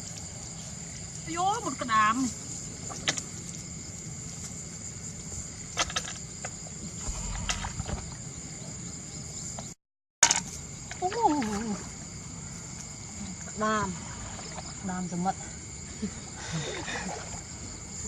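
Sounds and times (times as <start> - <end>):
insects chirring: 0.0 - 18.0
short falling vocal sound: 7.0 - 8.2.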